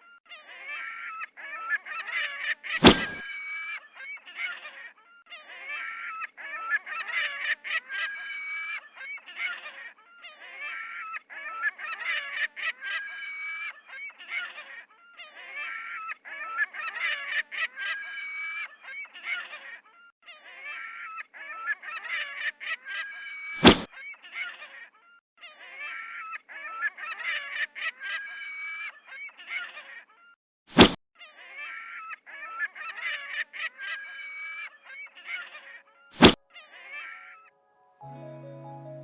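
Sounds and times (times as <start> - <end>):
gulls calling: 0.0 - 10.0
sharp knock: 2.8 - 3.2, 23.6 - 23.9, 30.8 - 31.0.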